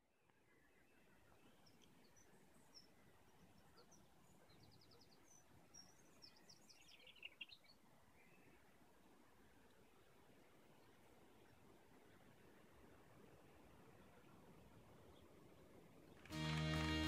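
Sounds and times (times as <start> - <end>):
birds chirping: 0.5 - 8.6.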